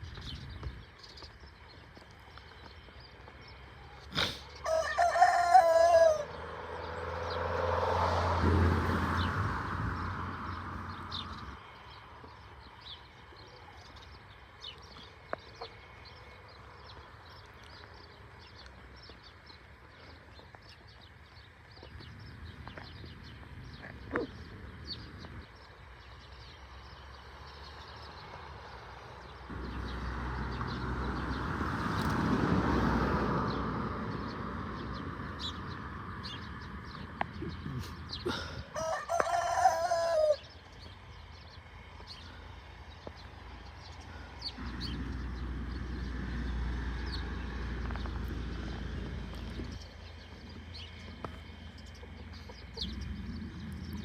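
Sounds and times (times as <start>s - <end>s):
rooster crowing: 4.6s - 6.4s, 38.3s - 40.5s
faint bird chirping: 10.5s - 30.0s.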